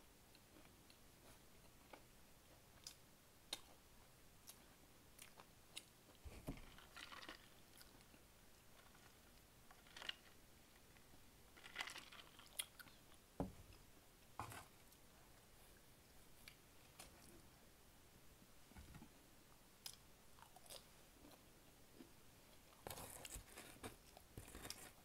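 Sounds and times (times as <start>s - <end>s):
person chewing food: 0.3s - 3.8s, 4.4s - 10.3s, 11.6s - 13.8s, 19.8s - 21.4s.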